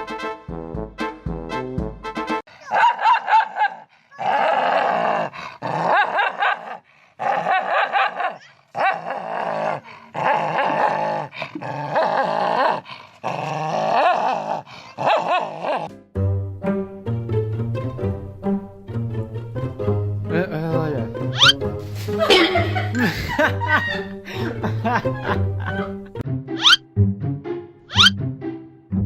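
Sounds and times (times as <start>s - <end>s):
dog growl-howling: 4.1s - 15.9s.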